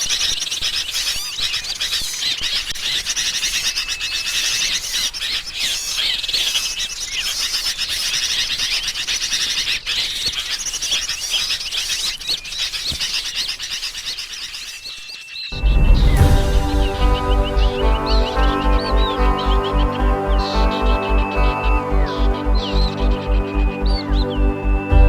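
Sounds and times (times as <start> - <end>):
small birds chirping and trilling: 0.0 - 25.0
thin high whistle: 15.6 - 25.0.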